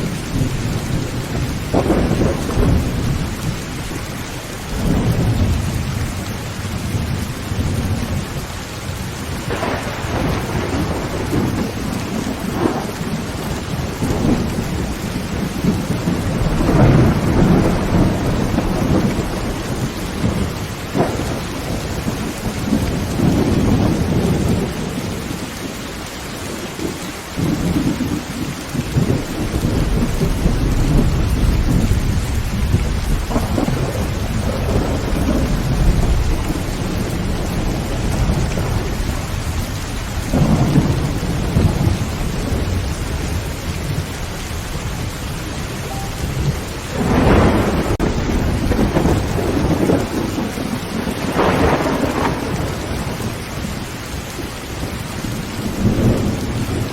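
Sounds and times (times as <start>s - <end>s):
thunder cracks: 0.0s - 4.0s, 9.2s - 25.0s, 28.8s - 53.4s
rolling thunder: 0.0s - 25.8s, 26.5s - 56.9s
heavy rain on a tin roof: 0.0s - 56.9s.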